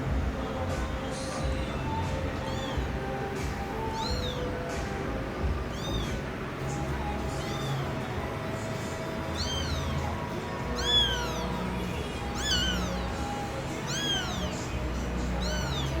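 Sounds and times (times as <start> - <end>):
background music: 0.0 - 16.0
cat meowing: 1.3 - 4.8, 5.5 - 16.0.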